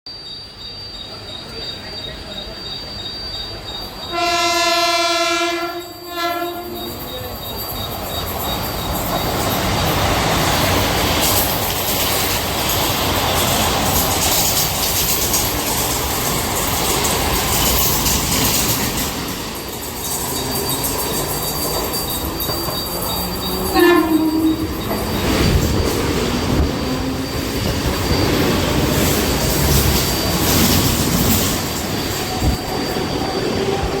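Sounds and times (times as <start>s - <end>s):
trains rumbling and rattling: 0.2s - 34.0s
high wheel squeal: 0.3s - 34.0s
train horn: 4.1s - 7.1s, 23.6s - 24.8s.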